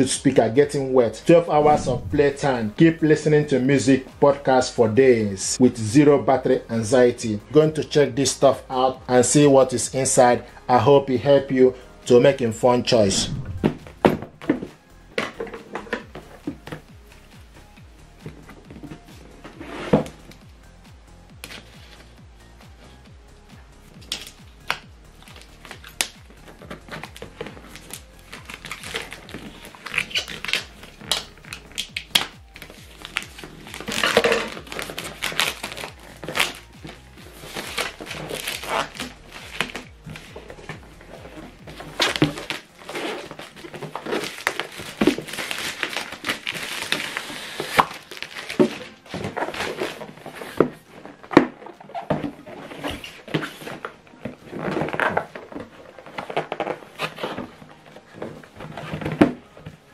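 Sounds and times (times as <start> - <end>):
faint background music: 0.0 - 59.9
packaging tearing and rustling: 25.2 - 59.4.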